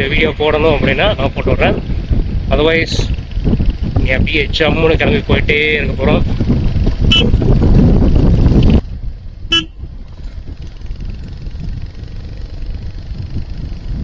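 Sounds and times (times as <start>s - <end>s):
motorcycle running noise: 0.0s - 14.0s
wind and road noise: 0.0s - 14.0s
vehicle horn toot: 7.1s - 7.4s, 9.5s - 9.8s.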